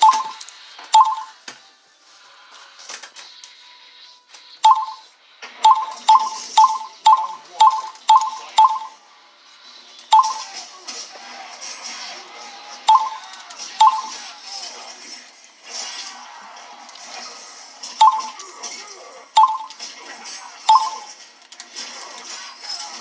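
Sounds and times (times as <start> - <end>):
short beeps with clicks: 1.0 - 1.3, 4.6 - 9.0, 10.1 - 10.5, 13.8 - 14.1.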